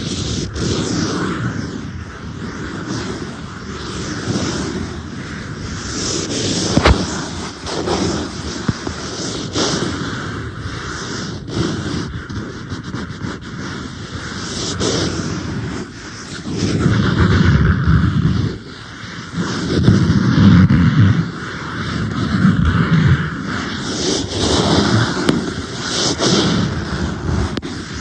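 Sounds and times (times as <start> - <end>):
fingernails scratching on tablet: 6.3 - 9.8.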